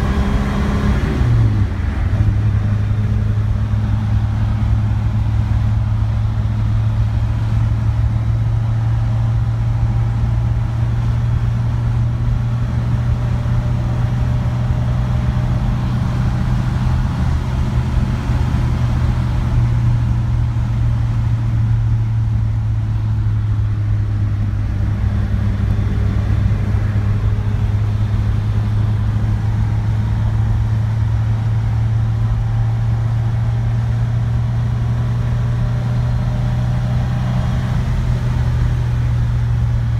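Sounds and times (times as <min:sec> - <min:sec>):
car engine running: 0:00.0 - 0:39.9
road noise: 0:00.0 - 0:39.9.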